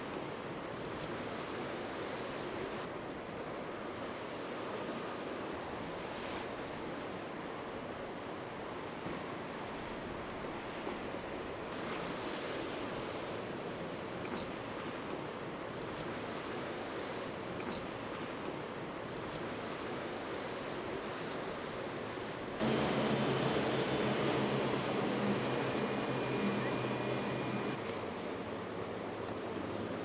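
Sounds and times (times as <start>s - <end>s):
boat engine drone: 22.6s - 30.0s
rushing surf: 22.6s - 30.0s.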